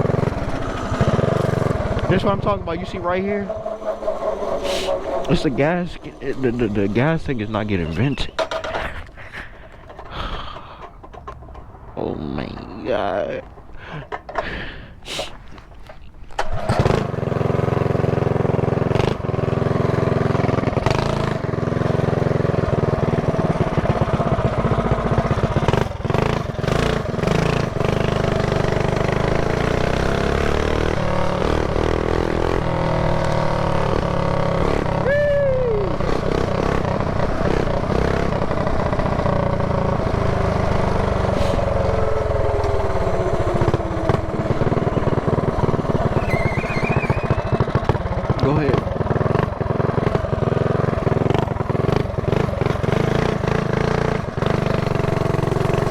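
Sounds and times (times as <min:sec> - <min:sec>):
downward sweeping whine: 0:00.0 - 0:14.4
mini bike engine revving: 0:00.0 - 0:55.9.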